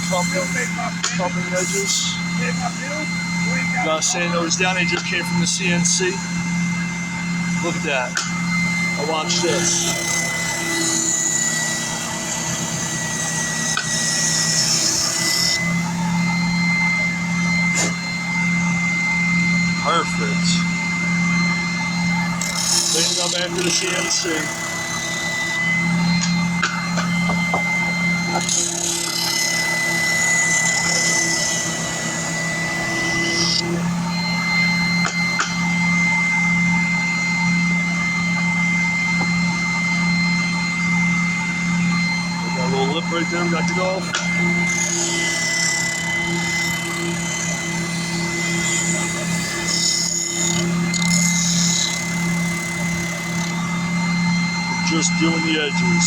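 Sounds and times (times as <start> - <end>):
electric sander grinding wood: 0.0 - 56.0.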